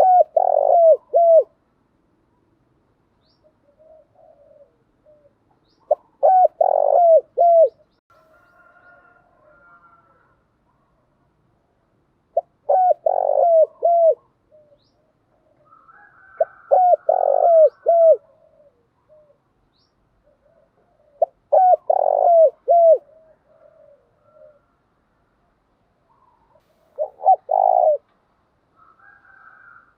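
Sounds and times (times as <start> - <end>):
dove cooing: 0.0 - 1.6, 3.5 - 8.0, 12.3 - 19.5, 20.2 - 24.8, 26.1 - 28.1.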